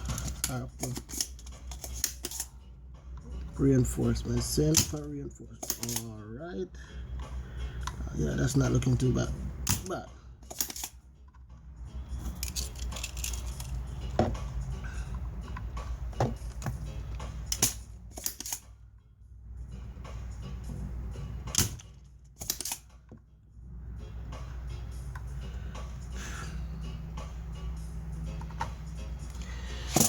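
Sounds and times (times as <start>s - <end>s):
hand tools clicking and tapping: 4.7s - 6.0s.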